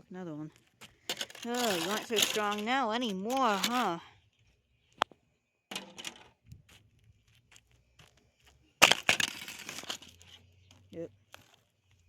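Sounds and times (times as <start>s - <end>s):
ice crunching: 1.0s - 4.0s, 8.8s - 11.7s
loud impact on ice: 8.8s - 10.1s.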